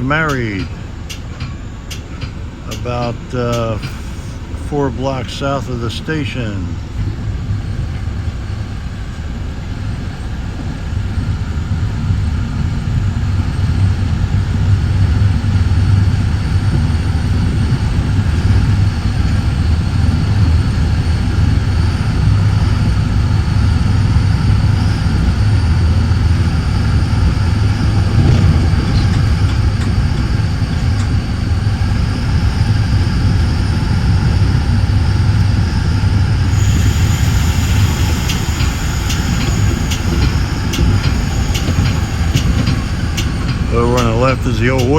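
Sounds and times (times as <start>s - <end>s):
train rumble at speed: 0.0s - 44.9s
faint high whine: 13.2s - 44.9s.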